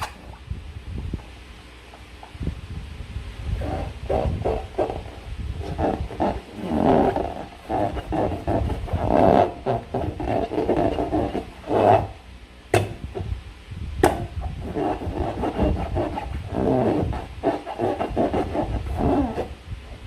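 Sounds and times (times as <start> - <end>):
slime squishing in balloon: 3.6 - 12.2, 14.4 - 19.6.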